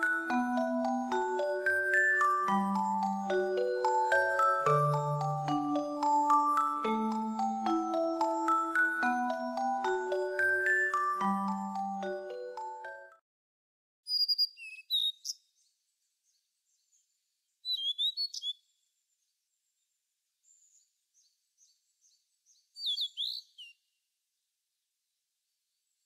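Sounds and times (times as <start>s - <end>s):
songbird chirping: 14.1s - 26.0s.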